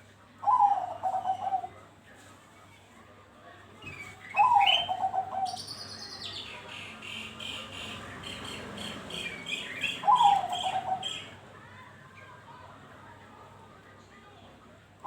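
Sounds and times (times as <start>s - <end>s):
dove cooing: 0.4s - 1.8s, 4.4s - 5.6s, 8.8s - 11.3s.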